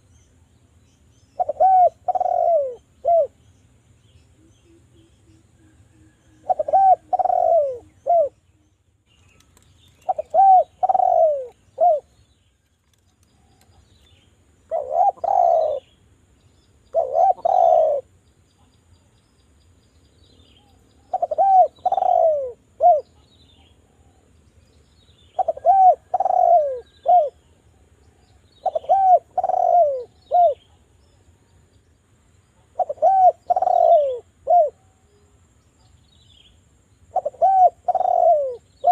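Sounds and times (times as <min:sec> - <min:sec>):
dove cooing: 0:01.4 - 0:03.4, 0:05.6 - 0:08.4, 0:10.0 - 0:12.2, 0:14.7 - 0:15.9, 0:16.9 - 0:18.1, 0:21.0 - 0:23.2, 0:25.3 - 0:27.4, 0:28.1 - 0:30.8, 0:32.6 - 0:35.1, 0:37.1 - 0:38.9.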